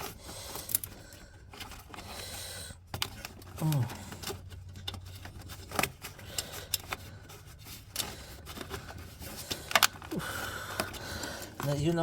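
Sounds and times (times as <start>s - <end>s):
light clicks and clinks of parts: 2.9s - 10.1s.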